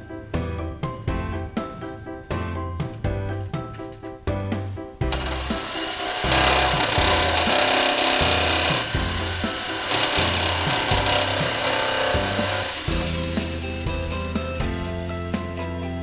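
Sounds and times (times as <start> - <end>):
background music with steady beat: 0.0 - 16.0
electric jigsaw cutting plastic: 5.1 - 14.5.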